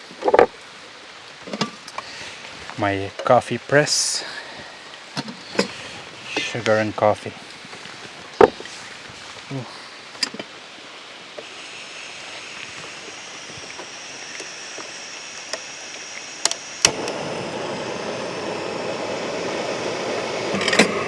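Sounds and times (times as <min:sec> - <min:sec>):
water boiling: 0:03.7 - 0:21.0
gas stove hissing: 0:08.2 - 0:21.0
sharp clicks: 0:11.4 - 0:17.6.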